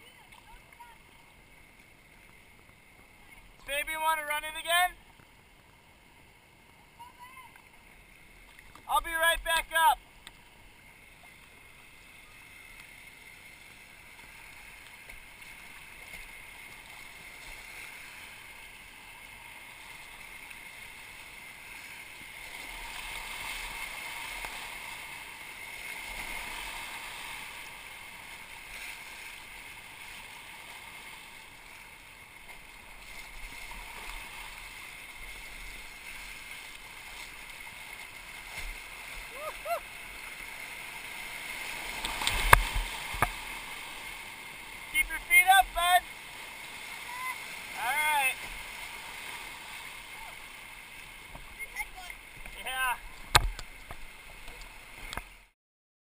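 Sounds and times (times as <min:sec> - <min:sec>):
river rapids rushing: 0:32.5 - 0:55.0.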